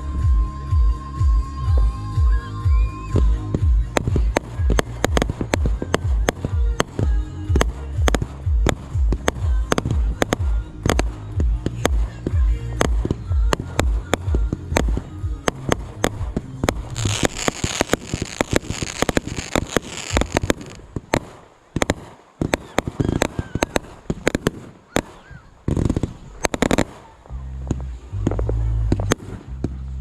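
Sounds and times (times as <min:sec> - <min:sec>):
fireworks crackling: 0:00.0 - 0:30.0
fireworks bangs and pops: 0:02.7 - 0:30.0.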